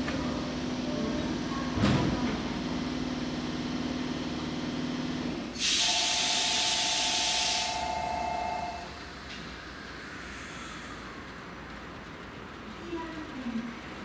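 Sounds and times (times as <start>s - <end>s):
electric train humming: 0.0s - 14.0s
compressed air hissing: 5.6s - 7.8s, 10.0s - 11.1s.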